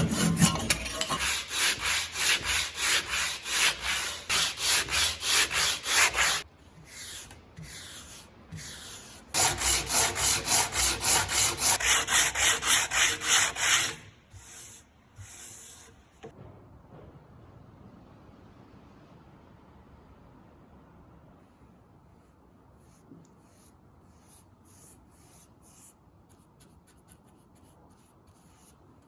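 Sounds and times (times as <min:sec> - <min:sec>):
hand sanding wood: 0:00.0 - 0:15.9.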